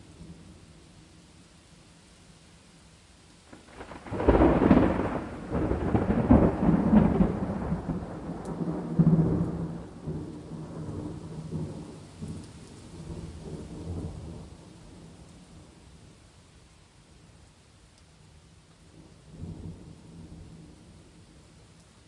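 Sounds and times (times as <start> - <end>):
steady rain: 0.0 - 22.0
thunder rumbling: 3.5 - 15.7.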